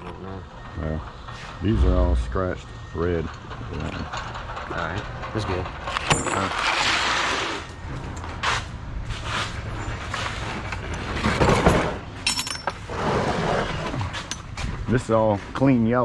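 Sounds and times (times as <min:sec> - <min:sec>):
steady low hum: 0:01.5 - 0:03.0
scrap brass clinking and rattling: 0:12.2 - 0:12.8.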